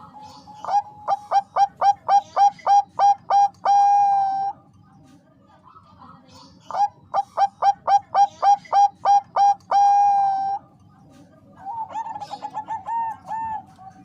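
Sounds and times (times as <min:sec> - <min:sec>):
dove cooing: 0:00.0 - 0:04.6, 0:06.7 - 0:10.7, 0:11.6 - 0:14.0.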